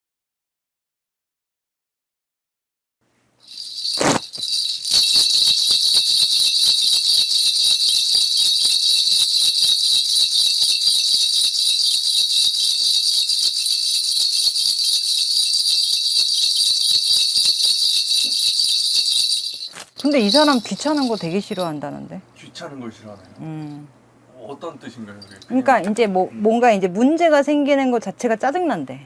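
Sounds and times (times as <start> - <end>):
small metal bells jingling: 3.4 - 21.9, 24.9 - 26.0.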